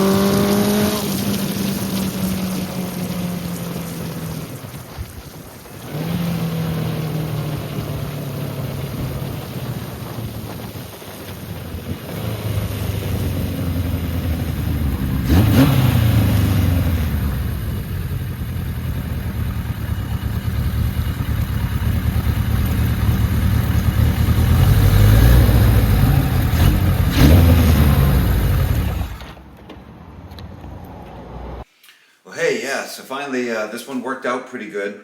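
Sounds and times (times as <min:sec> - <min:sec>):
motorcycle engine revving: 0:00.0 - 0:29.5
wind rushing over microphone: 0:08.7 - 0:13.4.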